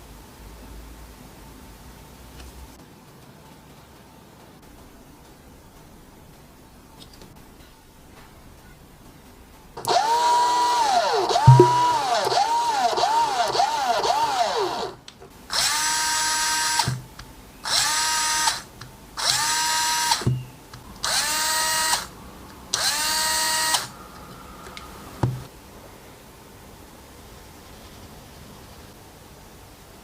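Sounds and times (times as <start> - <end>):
cordless drill motor whining: 9.8 - 17.0, 17.6 - 20.4, 21.0 - 22.1, 22.8 - 23.9.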